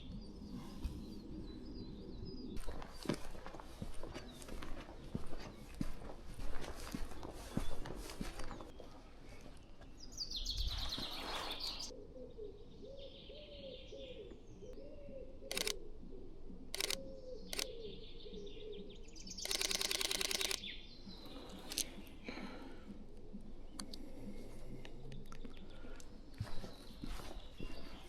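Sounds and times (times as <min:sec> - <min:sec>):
birds singing faintly: 0:00.0 - 0:28.0
camera shutter clicks: 0:15.5 - 0:15.8, 0:16.8 - 0:17.0, 0:19.4 - 0:20.6
low bird call: 0:16.7 - 0:20.6.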